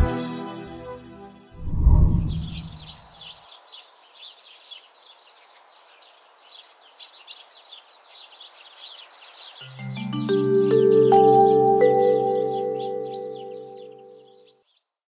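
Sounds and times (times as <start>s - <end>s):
low swelling sound: 1.6s - 2.9s
small birds chirping: 2.3s - 15.0s
faint outdoor background noise: 2.4s - 15.0s.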